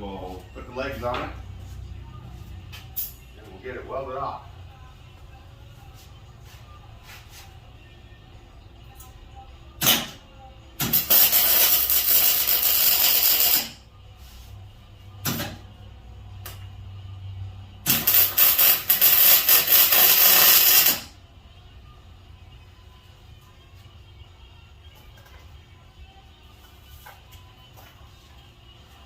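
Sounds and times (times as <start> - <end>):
welding arc strike: 10.8 - 13.8, 17.9 - 21.1
arc welding crackling hiss: 10.9 - 13.8, 17.9 - 21.1.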